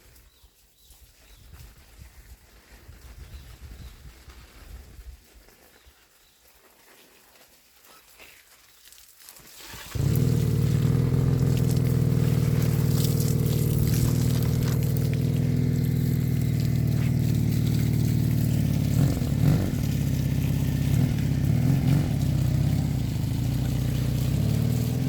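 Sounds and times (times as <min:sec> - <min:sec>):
small engine running: 0:09.7 - 0:25.0.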